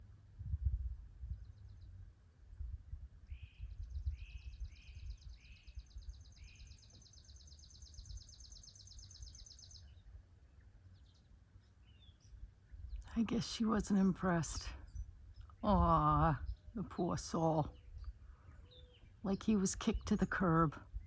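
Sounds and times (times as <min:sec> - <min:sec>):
low rumble: 0:00.0 - 0:06.4
down-slurred bird chirps: 0:03.2 - 0:21.0.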